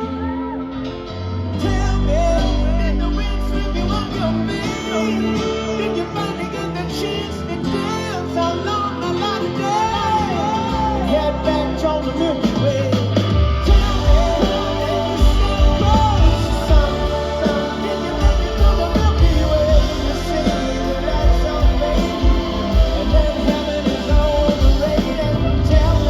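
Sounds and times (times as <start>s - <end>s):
person singing: 0.0s - 26.0s
rock band playing live: 0.0s - 26.0s
bass and drums: 9.6s - 26.0s.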